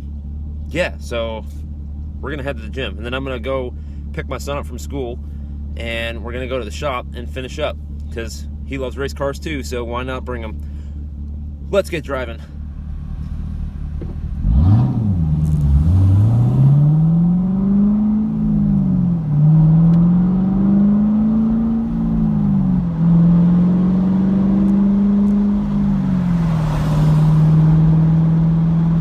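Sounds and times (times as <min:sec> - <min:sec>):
car engine revving through gears: 0:12.5 - 0:29.0.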